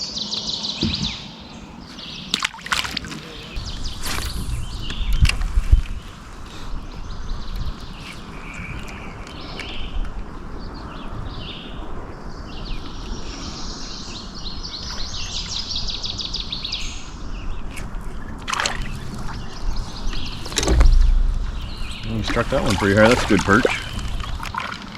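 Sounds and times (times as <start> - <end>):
songbirds singing: 0.0 - 24.9
brief knock: 0.8 - 1.2, 20.5 - 22.3.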